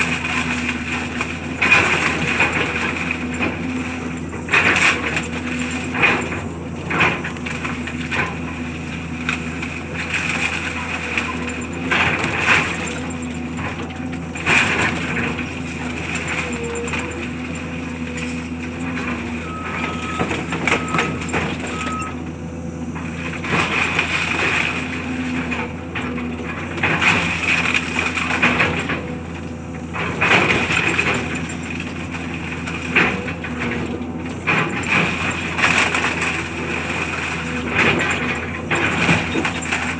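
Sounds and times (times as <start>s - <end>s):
crunching and clattering debris: 0.0s - 39.9s
heavy machinery engine hum: 0.0s - 39.9s
short beeps: 19.4s - 22.2s.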